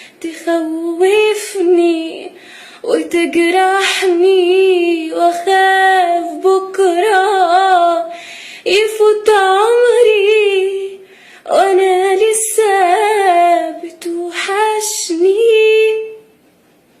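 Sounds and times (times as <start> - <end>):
woman singing unaccompanied: 0.0 - 16.4
singer breathing: 2.4 - 2.8, 8.1 - 8.7, 11.0 - 11.5.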